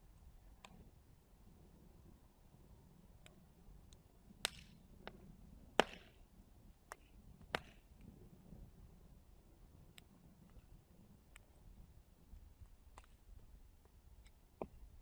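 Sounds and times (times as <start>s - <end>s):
wood fire crackling and popping: 3.2s - 14.9s.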